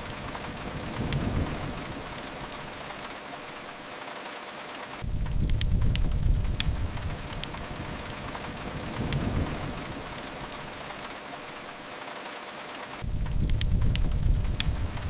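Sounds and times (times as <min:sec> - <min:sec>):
rain hiss: 0:00.0 - 0:15.0
wood fire crackling and popping: 0:00.0 - 0:15.0
faint low rumble: 0:05.0 - 0:11.0, 0:13.0 - 0:15.0.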